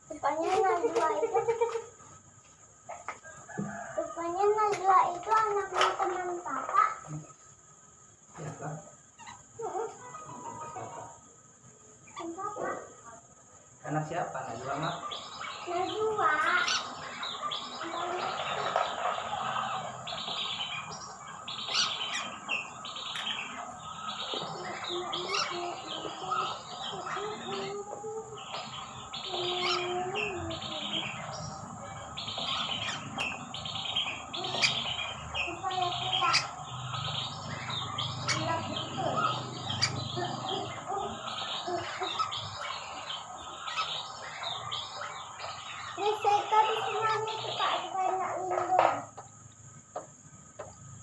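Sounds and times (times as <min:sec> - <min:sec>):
birds chirping and squawking: 0:00.0 - 0:51.0
whistling ducks calling: 0:28.3 - 0:48.2.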